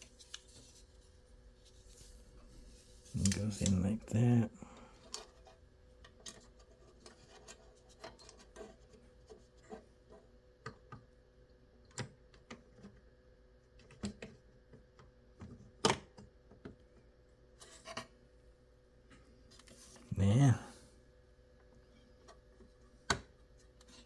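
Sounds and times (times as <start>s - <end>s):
faint steady hum: 0.0s - 7.9s.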